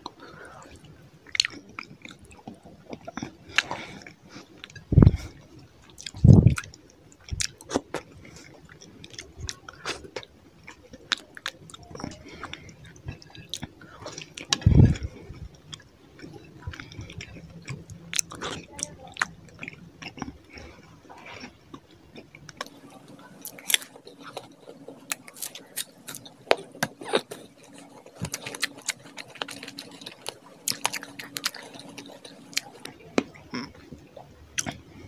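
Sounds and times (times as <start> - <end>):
person chewing food: 0.0 - 35.0.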